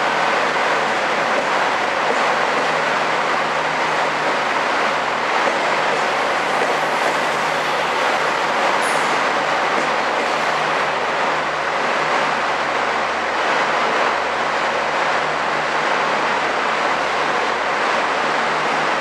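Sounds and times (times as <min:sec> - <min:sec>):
train wheels rushing: 0:00.0 - 0:18.9.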